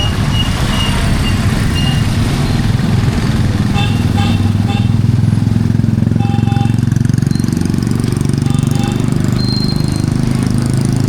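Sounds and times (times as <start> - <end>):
heavy rain hiss: 0.0 - 6.2
vehicle engine throbbing: 0.0 - 11.0
short beeps: 6.2 - 7.6, 8.5 - 10.1.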